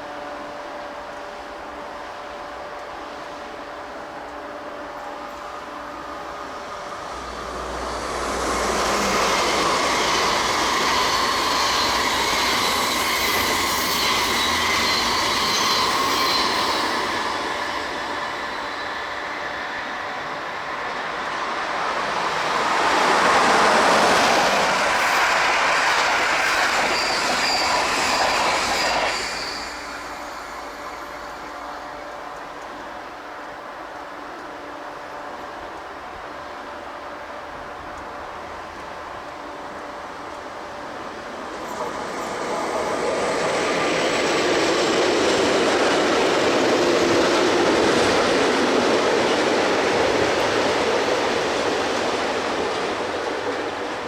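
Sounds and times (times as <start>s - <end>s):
train wheels rolling on rails: 0.1s - 54.0s
faint high squeal: 5.2s - 21.0s, 24.2s - 33.0s, 40.6s - 46.0s.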